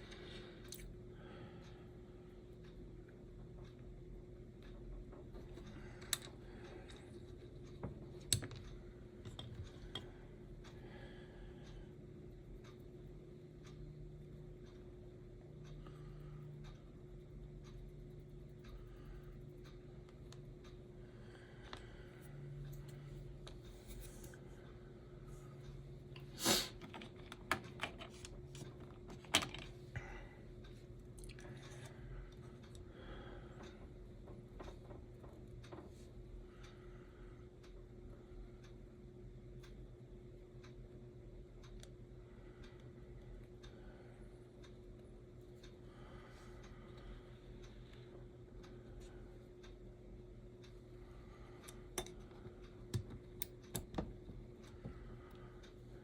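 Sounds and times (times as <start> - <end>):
steady low hum: 0.0 - 56.0
clicks and taps of tools: 4.7 - 10.1, 51.7 - 55.0
small tools clicking and tapping: 51.9 - 55.0.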